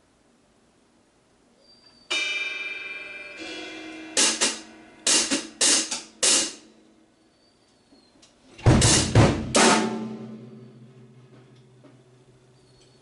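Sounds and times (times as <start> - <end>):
short bright cymbal hits: 2.1 - 6.7
cymbal ringing: 2.1 - 7.2, 9.5 - 12.9.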